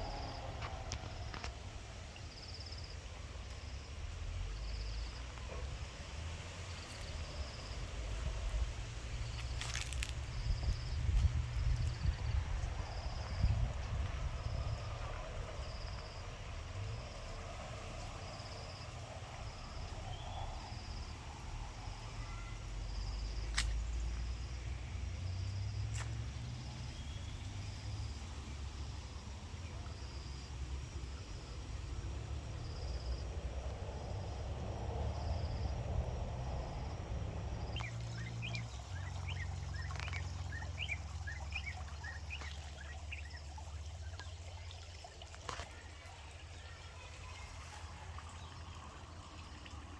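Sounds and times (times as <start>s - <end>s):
low outdoor rumble: 0.0s - 49.9s
birds chirping: 37.6s - 44.5s.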